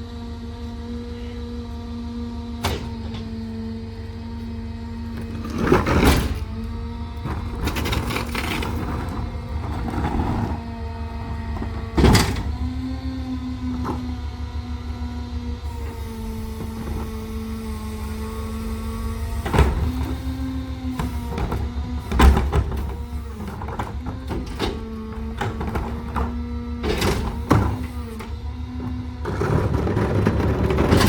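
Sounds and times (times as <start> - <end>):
garbage truck hydraulic whine: 0.0 - 31.0
truck engine rumble: 0.0 - 31.0
clattering: 5.2 - 12.7.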